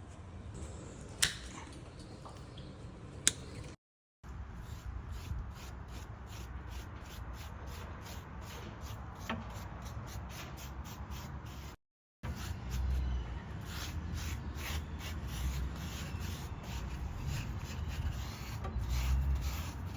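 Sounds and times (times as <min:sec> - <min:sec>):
hand tool rubbing back and forth: 0:13.6 - 0:19.9.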